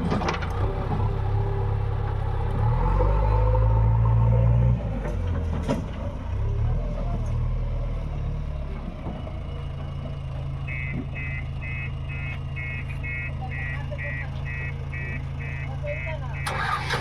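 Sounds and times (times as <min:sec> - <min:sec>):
diesel machine engine running: 0:00.0 - 0:17.0
reversing alarm beeping: 0:10.7 - 0:17.0.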